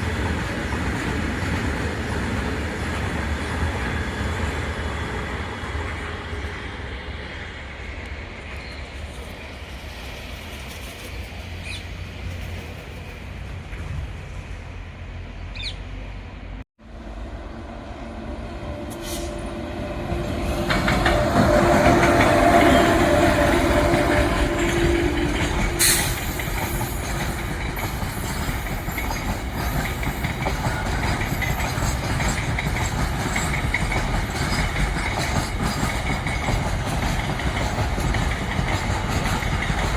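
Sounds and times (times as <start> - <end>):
freight train wheels clattering: 0.0 - 4.8, 20.3 - 39.9.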